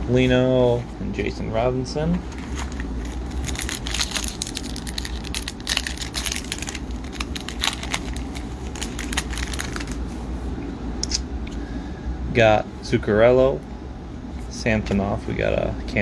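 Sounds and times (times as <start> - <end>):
cards and wrapper crinkling: 2.3 - 10.2.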